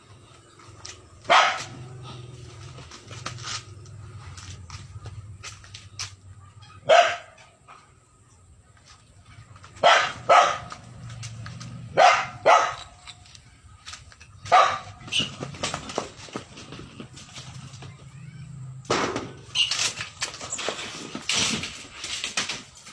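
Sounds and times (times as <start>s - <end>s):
dog yipping: 1.3s - 1.7s, 6.5s - 7.5s, 9.8s - 10.7s, 12.0s - 13.0s, 14.5s - 15.3s
dog barking: 1.3s - 1.8s, 6.5s - 7.5s, 9.8s - 10.8s, 11.9s - 13.0s, 14.5s - 15.0s.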